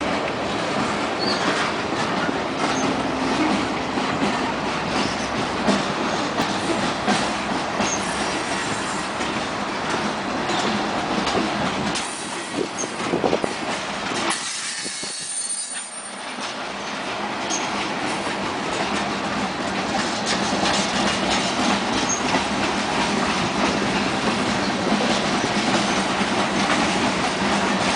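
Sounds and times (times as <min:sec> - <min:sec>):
train wheels clicking over rail joints: 0:00.0 - 0:27.9
high wheel squeal: 0:01.2 - 0:01.6, 0:14.4 - 0:16.9.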